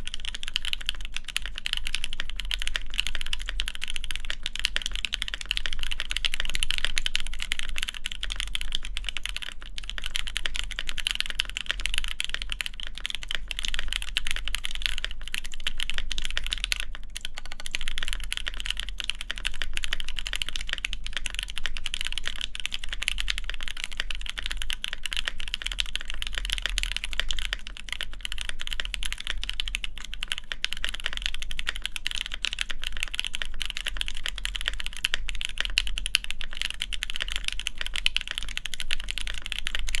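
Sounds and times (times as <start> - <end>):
fast typing on mechanical keyboard: 0.0 - 40.0.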